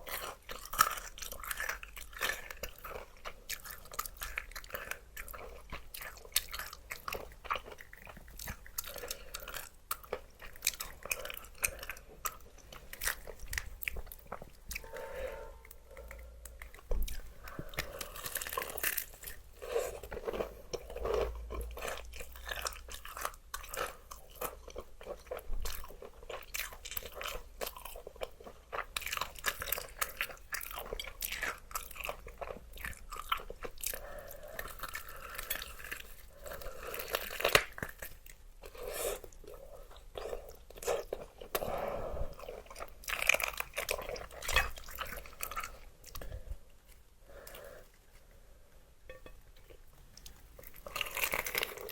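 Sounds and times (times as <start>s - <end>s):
crunchy bites and chewing: 16.0s - 41.7s, 50.2s - 51.9s.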